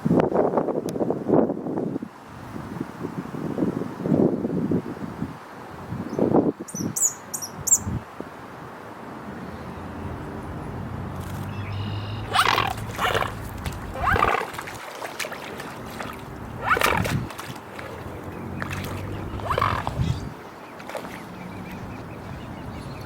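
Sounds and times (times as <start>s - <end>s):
loud animal cries: 11.8s - 14.4s, 19.2s - 20.2s.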